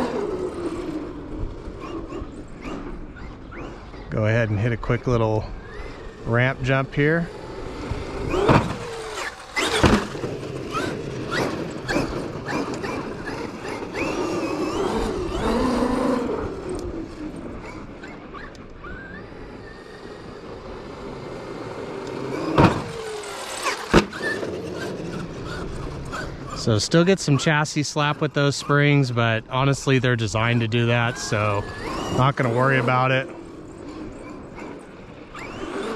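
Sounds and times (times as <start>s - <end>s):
electric motor whine: 0.0s - 4.1s, 4.9s - 27.1s, 29.6s - 35.9s
toy truck landing thumps: 8.3s - 13.0s, 22.4s - 24.5s.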